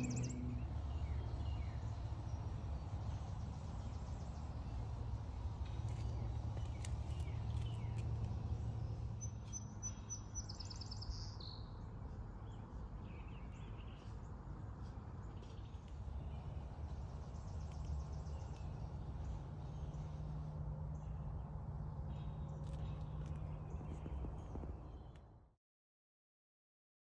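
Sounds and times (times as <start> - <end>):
high bird trill: 0.0 - 1.3
low steady rumble: 0.0 - 25.3
songbirds singing: 0.0 - 25.4.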